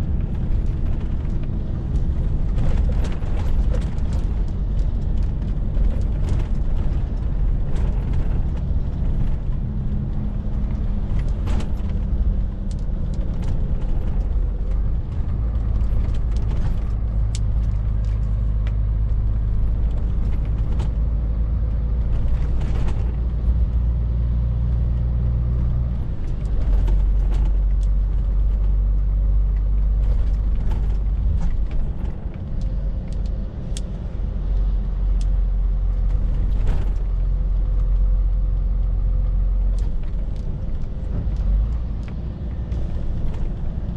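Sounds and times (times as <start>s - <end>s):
light clicks and rattles: 0.1s - 23.9s, 24.6s - 43.9s.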